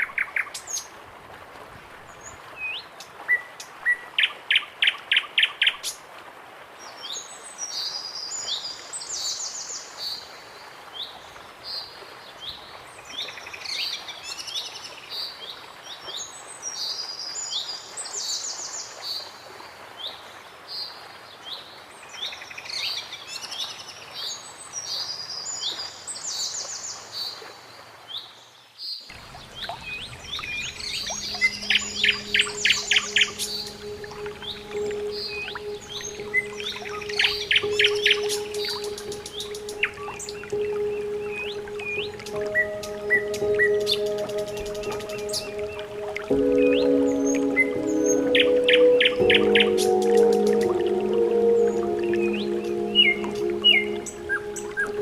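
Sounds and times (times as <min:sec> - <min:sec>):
outdoor background noise: 0:00.0 - 0:55.0
birds chirping and trilling: 0:29.4 - 0:55.0.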